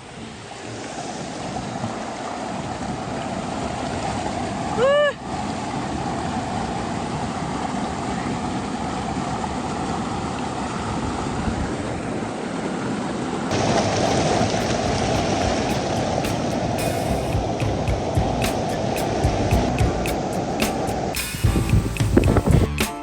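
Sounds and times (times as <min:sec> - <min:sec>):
waterfall rushing: 0:13.5 - 0:22.8.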